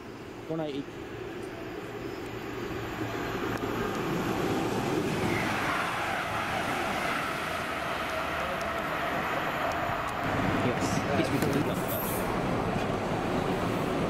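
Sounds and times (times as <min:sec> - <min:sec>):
faint steady whine: 0:00.0 - 0:05.5
diesel train passing at speed: 0:00.0 - 0:14.0.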